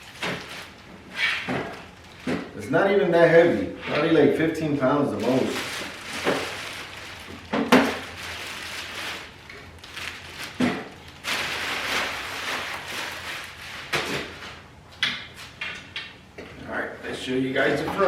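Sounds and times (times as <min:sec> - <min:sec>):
packaging rustling: 0:00.0 - 0:02.5, 0:05.1 - 0:14.6.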